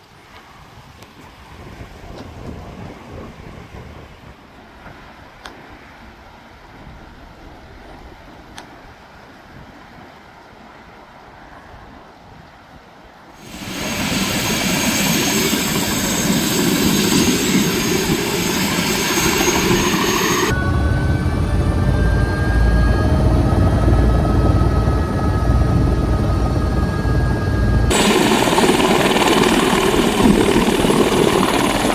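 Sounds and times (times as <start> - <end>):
deep helicopter rumble: 13.4 - 31.9
helicopter rotor and turbine noise: 13.4 - 31.9
high whining tones: 13.4 - 31.9.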